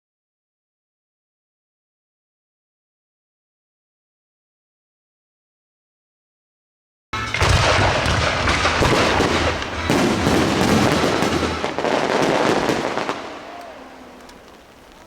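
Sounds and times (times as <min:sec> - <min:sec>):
fireworks bangs and crackling: 0:07.2 - 0:15.0.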